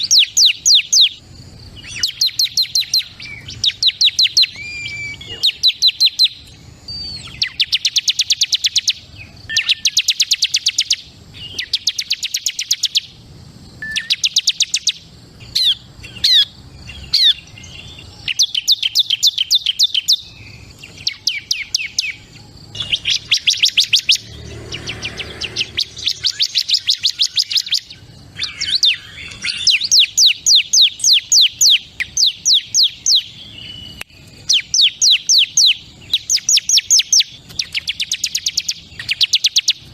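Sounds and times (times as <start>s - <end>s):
bird singing fast trills: 0.0s - 39.9s.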